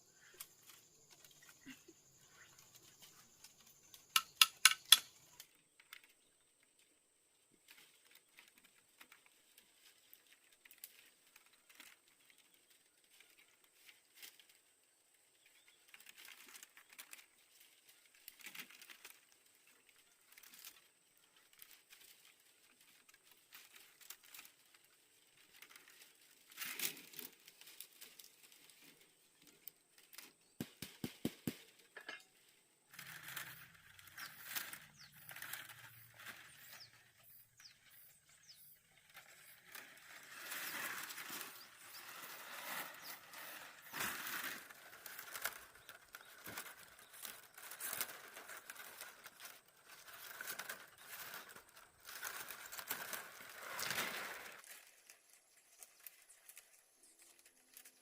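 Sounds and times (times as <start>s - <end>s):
bamboo strips rustling: 0.0s - 58.0s
bamboo strips clicking: 3.0s - 6.1s.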